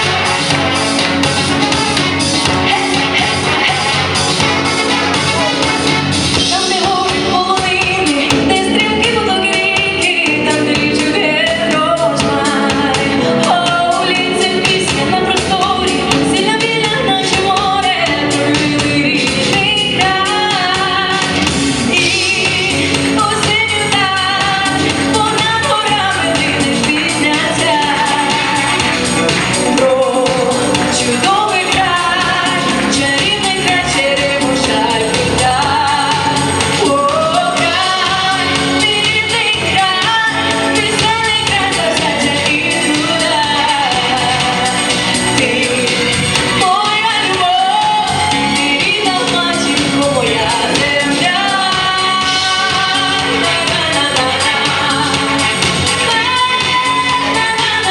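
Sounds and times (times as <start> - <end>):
woman singing: 0.0 - 5.7, 6.3 - 57.9
instrumental accompaniment with beat: 0.0 - 57.9.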